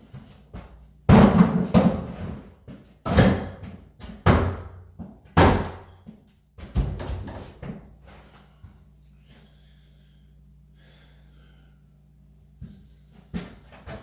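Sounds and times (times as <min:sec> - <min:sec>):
cabinet slammed during demolition: 0:01.1 - 0:02.1, 0:05.4 - 0:05.8.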